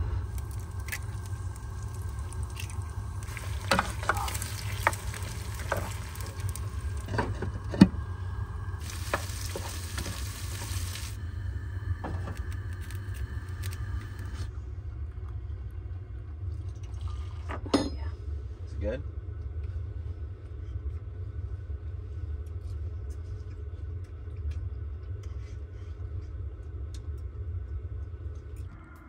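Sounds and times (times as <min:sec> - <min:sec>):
food sizzling in a frying pan: 0:00.0 - 0:11.2
low rumble: 0:00.0 - 0:16.9.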